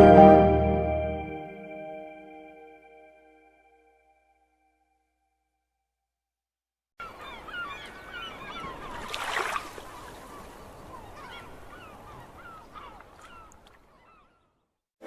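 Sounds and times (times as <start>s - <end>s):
flock of birds calling: 7.0s - 9.1s, 9.8s - 14.4s.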